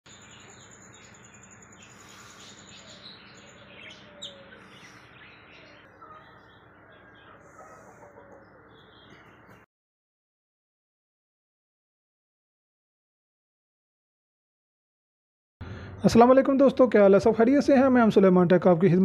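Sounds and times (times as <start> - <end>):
birds chirping: 0.0 - 9.7.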